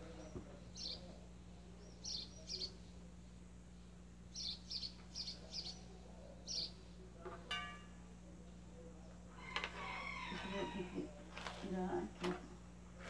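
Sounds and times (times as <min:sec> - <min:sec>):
low steady hum: 0:00.0 - 0:13.0
small bird chirping: 0:00.1 - 0:02.8, 0:04.3 - 0:06.8.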